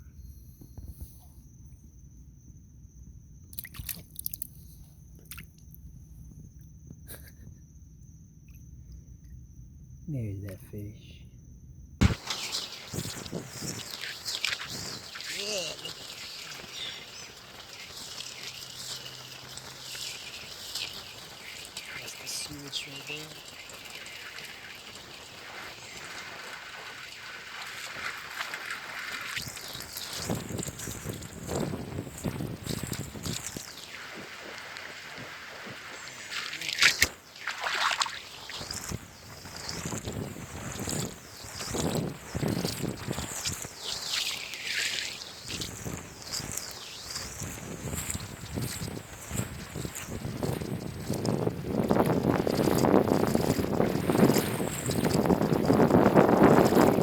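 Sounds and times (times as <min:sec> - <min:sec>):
squelching splashes in water: 0:03.5 - 0:04.5, 0:05.2 - 0:05.7, 0:12.0 - 0:35.0, 0:35.8 - 0:40.0, 0:40.6 - 0:51.3
wind buffeting microphone: 0:12.0 - 0:15.4, 0:29.4 - 0:36.2, 0:38.6 - 0:44.1, 0:45.2 - 0:57.0
floodwater rushing: 0:12.0 - 0:39.1, 0:40.8 - 0:57.0.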